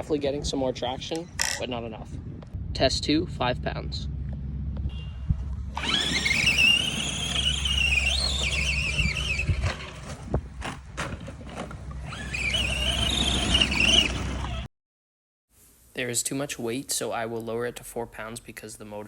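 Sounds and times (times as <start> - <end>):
electric motor whining: 5.6 - 10.1, 11.8 - 14.7.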